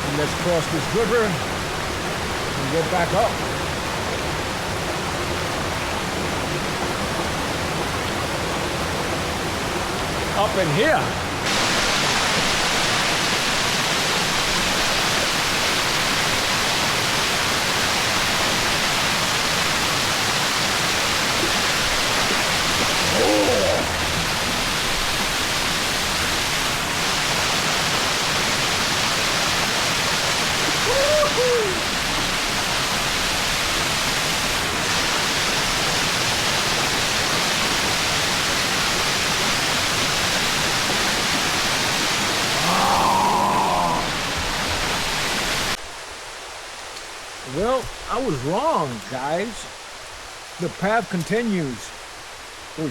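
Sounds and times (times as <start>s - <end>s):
river rushing over rocks: 0.0s - 52.9s.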